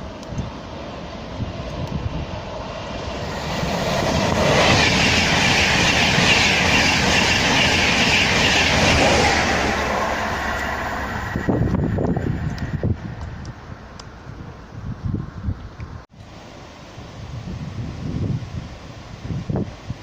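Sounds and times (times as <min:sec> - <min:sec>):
train passing on track: 0:00.0 - 0:15.4.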